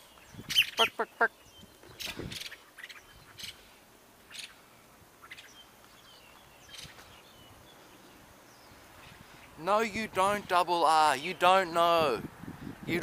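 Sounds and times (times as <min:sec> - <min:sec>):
harsh bird chirps: 0:00.0 - 0:03.7, 0:05.2 - 0:09.6.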